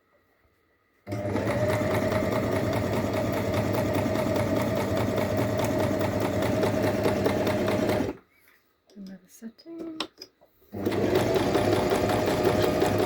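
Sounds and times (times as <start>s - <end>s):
sewing machine motor whine: 1.1s - 8.2s, 10.8s - 13.0s
sewing needle ticking: 1.1s - 8.2s.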